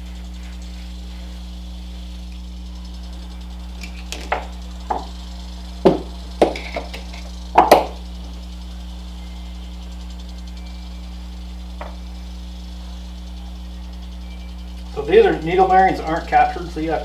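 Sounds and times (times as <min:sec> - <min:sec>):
low hum: 0:00.0 - 0:17.0
parts knocking on workbench: 0:04.1 - 0:05.1, 0:05.8 - 0:08.0.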